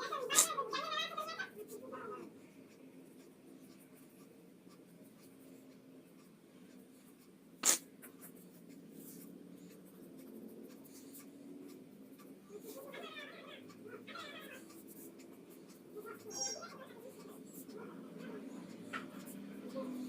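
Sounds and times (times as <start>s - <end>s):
pencil scratching on paper: 0.0s - 0.8s, 3.0s - 20.0s
sharp click: 7.6s - 7.9s.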